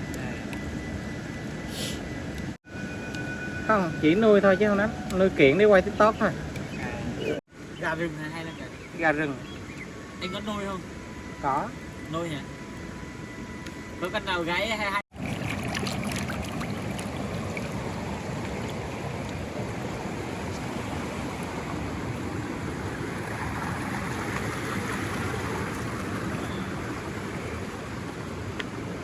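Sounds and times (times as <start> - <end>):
flowing water rushing: 15.1 - 29.0.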